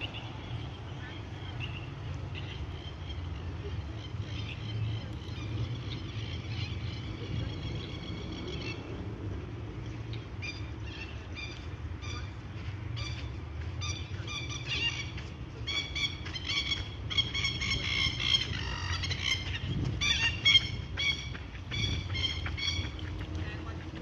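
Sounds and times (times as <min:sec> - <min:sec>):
cygnets peeping: 0:09.9 - 0:24.0.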